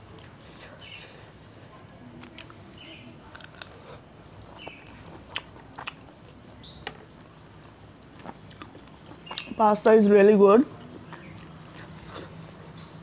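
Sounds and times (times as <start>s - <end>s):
person chewing: 2.2s - 6.3s, 8.0s - 9.6s, 10.8s - 12.9s.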